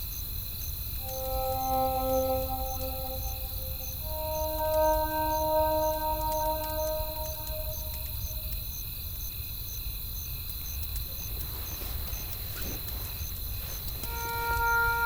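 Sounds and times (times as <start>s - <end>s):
insect chirping: 0.0s - 15.0s
faint steady high tone: 1.0s - 8.6s, 14.0s - 15.0s
soft music notes: 1.0s - 8.6s, 14.0s - 15.0s.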